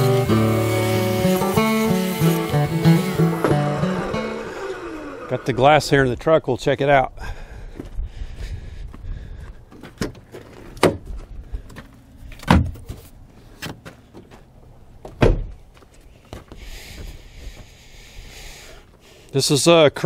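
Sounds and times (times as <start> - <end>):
knocks and clunks at a truck: 9.8 - 11.3, 12.4 - 13.0, 15.0 - 15.6.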